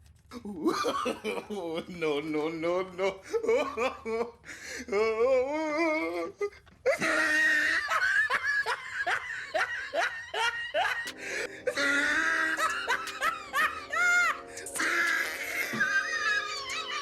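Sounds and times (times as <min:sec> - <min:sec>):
person laughing: 0:00.4 - 0:02.2, 0:03.0 - 0:17.0
music: 0:11.1 - 0:17.0.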